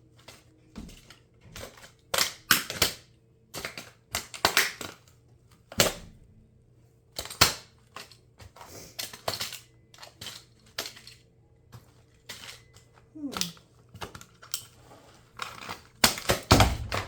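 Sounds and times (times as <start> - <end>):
plastic toy cracking underfoot: 0.2 - 6.1, 7.2 - 11.2, 15.3 - 17.0.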